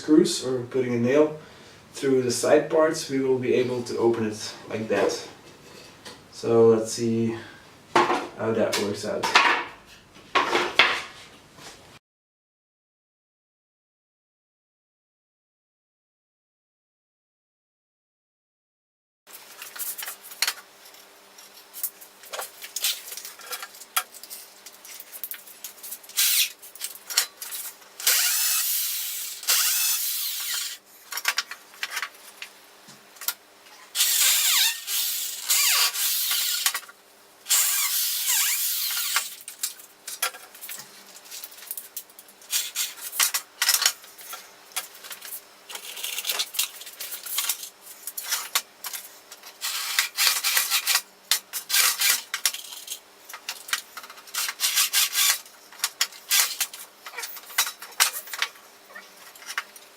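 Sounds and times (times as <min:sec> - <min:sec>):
power drill driving screws into wood: 0:26.2 - 0:26.6, 0:28.0 - 0:30.8, 0:34.0 - 0:36.8, 0:37.5 - 0:39.4, 0:49.6 - 0:51.0, 0:51.7 - 0:52.3, 0:54.4 - 0:55.4.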